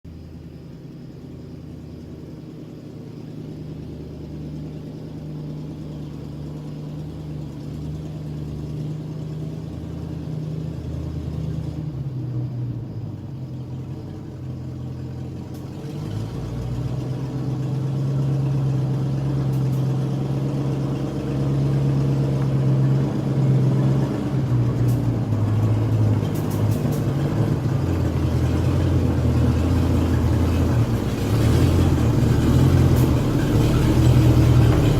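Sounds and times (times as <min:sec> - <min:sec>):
heavy truck engine running: 0:00.1 - 0:34.9.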